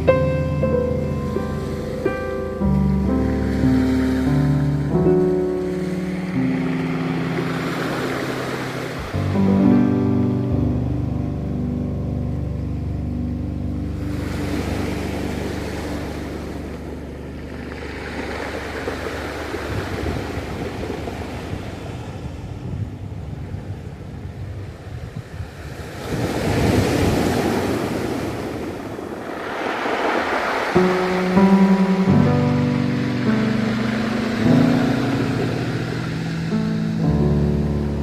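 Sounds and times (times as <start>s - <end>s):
held music notes: 0.0s - 17.4s
ocean waves washing onto shore: 0.0s - 38.0s.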